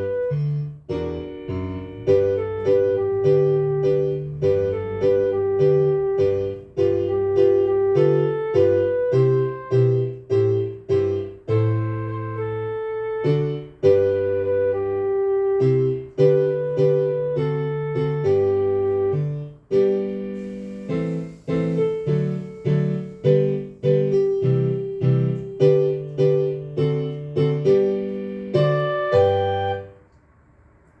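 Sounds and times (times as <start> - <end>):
piano playing foxtrot: 0.0 - 30.1.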